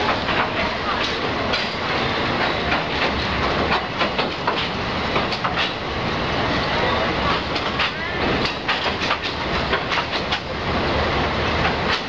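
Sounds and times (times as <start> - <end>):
sharp clicks and knocks: 0.0 - 1.8, 2.4 - 5.8, 7.3 - 10.5, 11.6 - 12.0
train wheels clattering on rails: 0.0 - 12.0.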